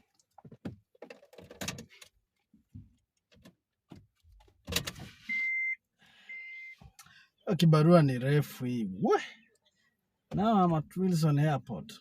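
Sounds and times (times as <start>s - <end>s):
car warning chime beeping: 5.2s - 6.8s.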